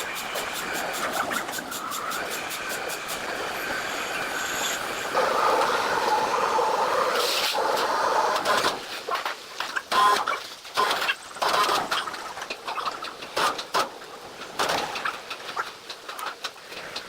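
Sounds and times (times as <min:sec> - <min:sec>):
sawmill machinery grinding: 0:00.0 - 0:08.9.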